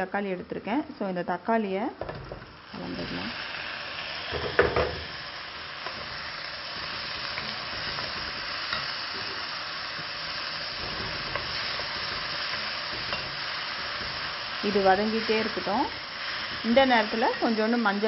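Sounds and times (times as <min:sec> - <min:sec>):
frying sizzle: 0:02.0 - 0:18.0
thump: 0:04.3 - 0:05.0
tomatoes dropping into hot oil: 0:04.3 - 0:17.8.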